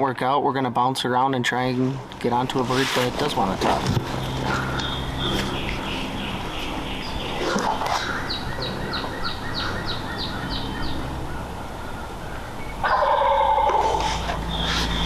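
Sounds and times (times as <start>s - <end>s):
songbird high notes: 4.1s - 15.0s
turkey gobbling: 4.3s - 15.0s.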